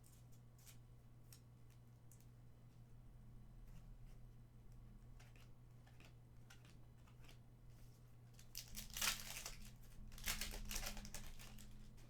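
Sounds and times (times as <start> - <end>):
foil wrapper crinkling and tearing: 8.5 - 11.8.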